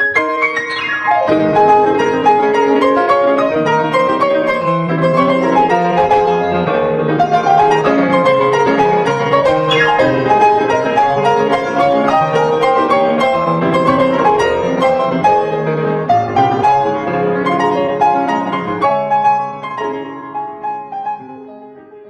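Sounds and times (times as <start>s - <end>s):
solo piano music: 0.0s - 22.0s.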